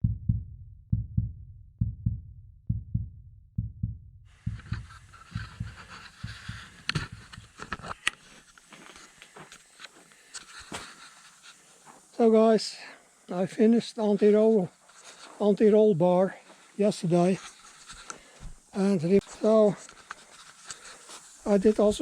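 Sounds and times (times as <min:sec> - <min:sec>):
heartbeat thumps: 0:00.0 - 0:07.6
hiss with sharp clicks: 0:04.4 - 0:22.0.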